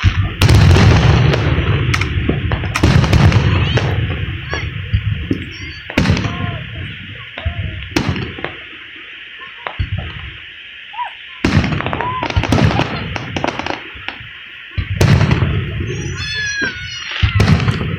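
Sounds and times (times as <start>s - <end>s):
low rumble after bangs: 0.0s - 6.6s
fireworks banging: 0.0s - 17.9s.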